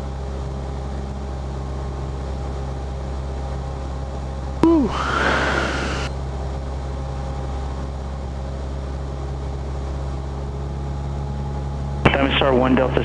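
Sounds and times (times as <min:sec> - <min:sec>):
airplane engine droning: 0:04.6 - 0:06.1
radio static hissing: 0:04.6 - 0:06.1.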